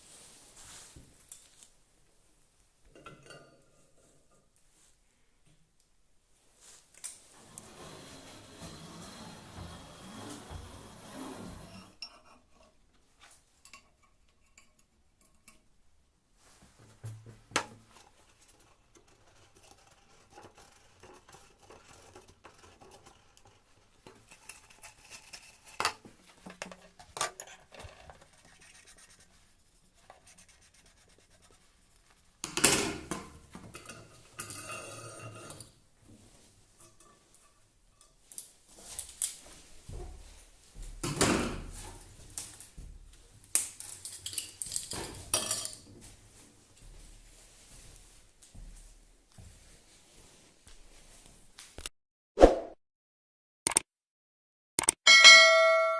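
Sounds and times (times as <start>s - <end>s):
metal scraping: 7.3s - 12.3s, 32.4s - 38.2s
metal tools clinking: 43.8s - 45.9s.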